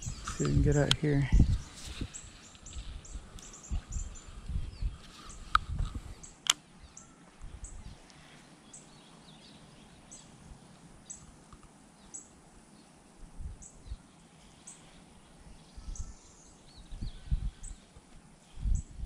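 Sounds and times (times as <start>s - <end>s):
birds chirping: 0.0s - 13.0s, 13.6s - 19.0s
sharp clicks: 5.5s - 6.6s.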